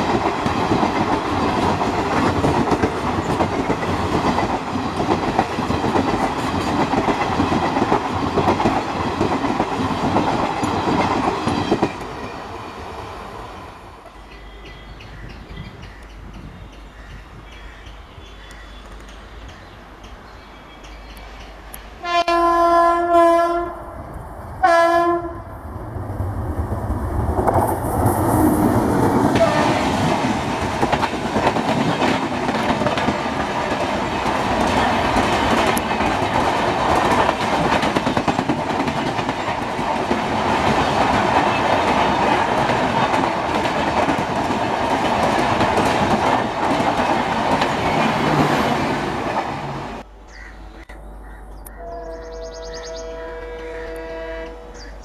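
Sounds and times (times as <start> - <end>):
train wheels on rails: 0.0 - 22.2, 24.0 - 50.1
train horn blasts: 22.0 - 23.9, 24.6 - 25.5, 29.4 - 30.0, 51.7 - 55.0.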